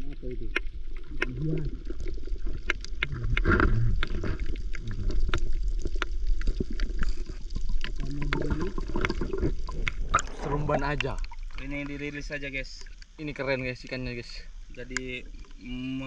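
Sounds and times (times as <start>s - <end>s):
water sloshing and gurgling: 0.0s - 16.0s
steady low rumble: 8.0s - 12.7s.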